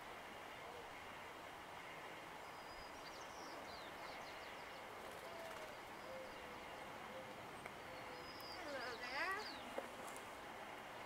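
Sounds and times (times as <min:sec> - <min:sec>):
small birds chirping: 0:02.4 - 0:10.2.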